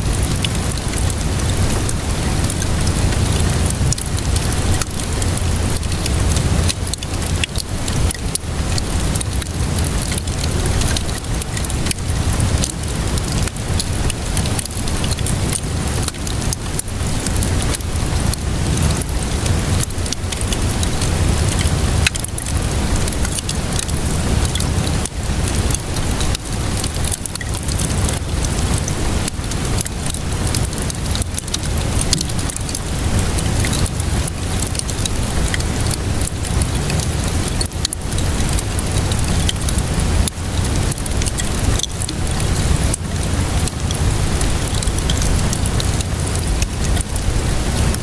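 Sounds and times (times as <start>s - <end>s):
steady rain: 0.0s - 48.0s
wood fire crackling: 0.0s - 48.0s.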